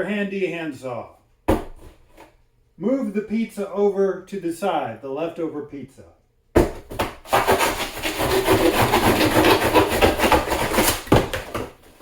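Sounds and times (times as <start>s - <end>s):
handsaw sawing through pizza: 7.3s - 11.2s.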